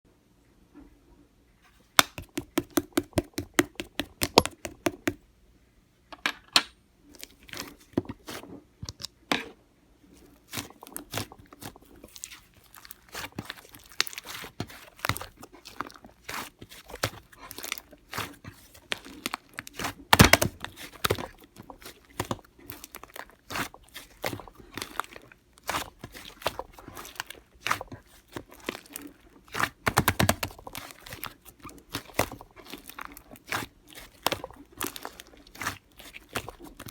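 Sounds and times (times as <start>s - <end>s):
slime squelching by hand: 2.0s - 5.2s, 7.1s - 8.6s, 10.1s - 36.9s
air bubbles popping: 2.2s - 5.2s.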